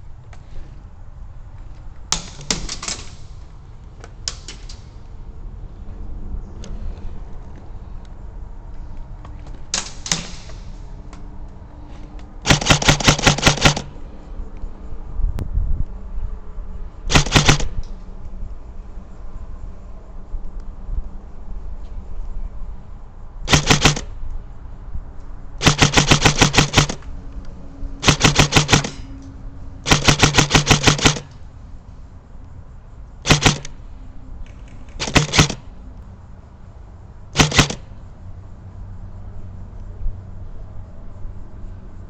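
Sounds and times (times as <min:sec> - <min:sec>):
airsoft gun bursts: 0:12.4 - 0:14.0, 0:17.1 - 0:17.8, 0:23.5 - 0:24.1, 0:25.6 - 0:27.0, 0:28.0 - 0:29.0, 0:29.8 - 0:31.3, 0:33.2 - 0:33.8, 0:35.0 - 0:35.6, 0:37.4 - 0:38.0.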